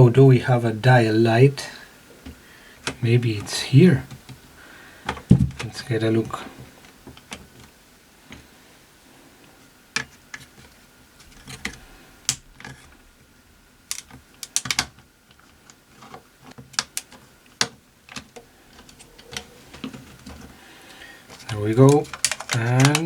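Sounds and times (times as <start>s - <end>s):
radio parts clicking and tapping: 13.8s - 23.0s.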